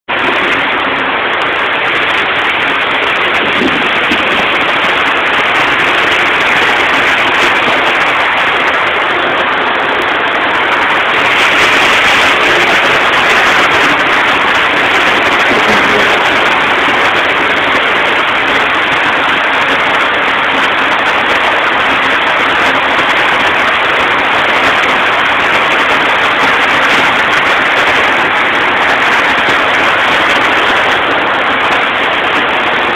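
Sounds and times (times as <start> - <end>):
car engine running: 9.7 - 21.3.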